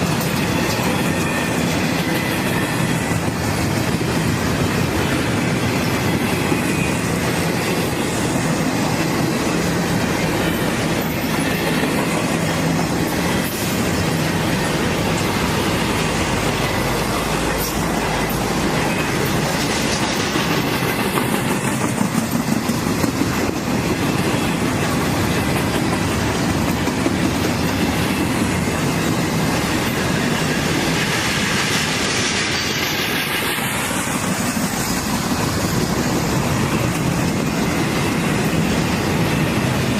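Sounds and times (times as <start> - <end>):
wheel squeal: 0.0 - 3.3
train wheels clattering on rails: 0.0 - 39.9.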